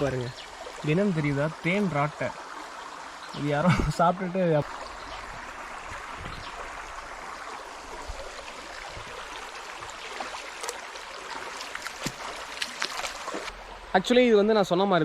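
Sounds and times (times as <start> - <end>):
stream flowing over rocks: 0.0 - 15.0.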